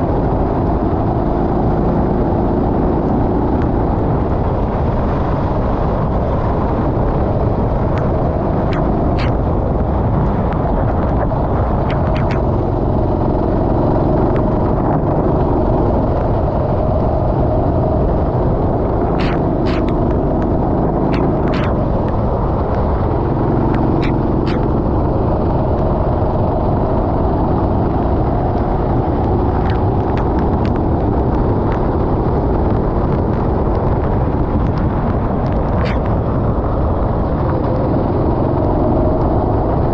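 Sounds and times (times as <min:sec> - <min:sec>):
kart engine rumbling: 0:06.3 - 0:26.0
sharp ticks: 0:07.9 - 0:09.5, 0:11.2 - 0:13.0, 0:19.0 - 0:24.8, 0:34.6 - 0:36.2.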